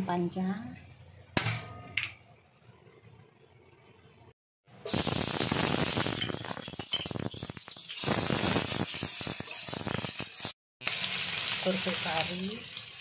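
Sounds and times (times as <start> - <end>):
onion and garlic sizzling in oil: 4.8 - 13.0.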